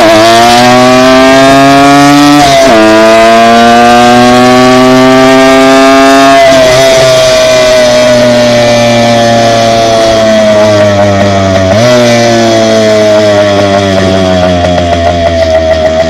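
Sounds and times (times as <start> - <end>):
dirt bike engine at high revs: 0.0 - 16.0.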